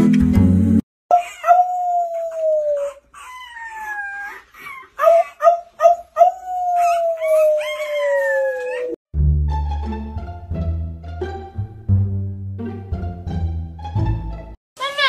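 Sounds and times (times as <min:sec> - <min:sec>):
man howling: 0:01.1 - 0:03.0
puppy howling: 0:01.1 - 0:09.0.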